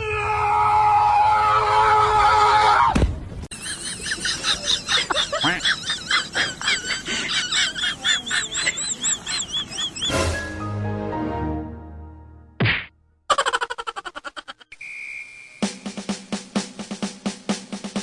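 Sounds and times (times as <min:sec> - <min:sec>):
birds chirping: 0:03.5 - 0:10.2.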